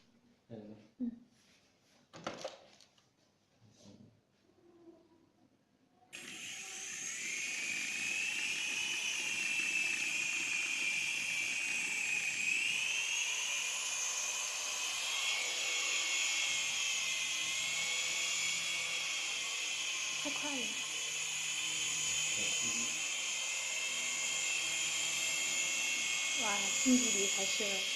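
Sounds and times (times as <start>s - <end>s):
toy airplane motors whining: 6.2s - 27.9s.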